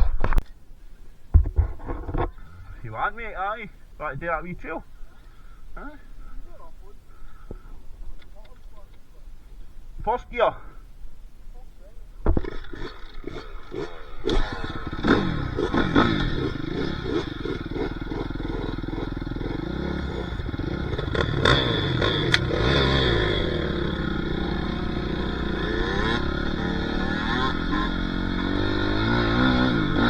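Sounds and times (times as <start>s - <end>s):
dirt bike engine revving: 12.3s - 30.0s.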